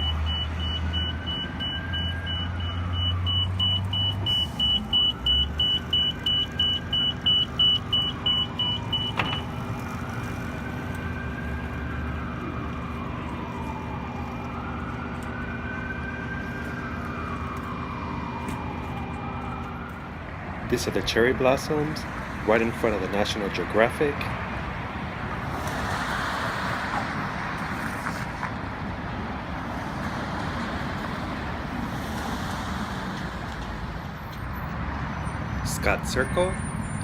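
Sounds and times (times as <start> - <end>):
siren wailing: 0.0 - 23.5.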